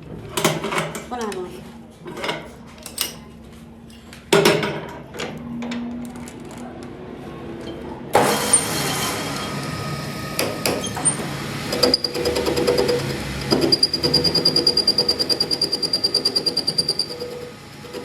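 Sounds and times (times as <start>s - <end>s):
power tool running: 8.2s - 18.0s.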